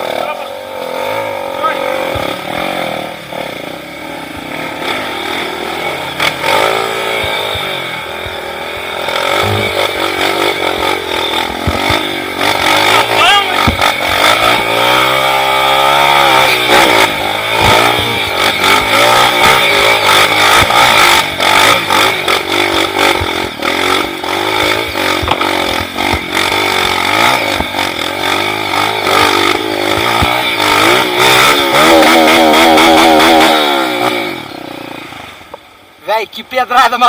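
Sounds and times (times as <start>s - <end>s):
off-road motorcycle engine revving: 0.0s - 37.0s.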